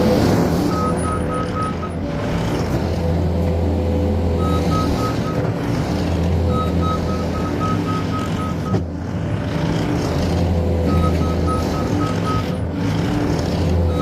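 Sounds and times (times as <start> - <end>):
track loader engine running: 0.0 - 14.0
backup alarm beeping: 4.4 - 5.4, 6.5 - 8.8.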